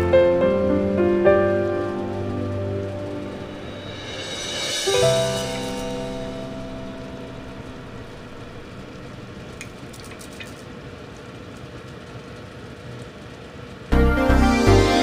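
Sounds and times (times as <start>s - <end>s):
background music: 0.0s - 8.6s, 13.9s - 15.0s.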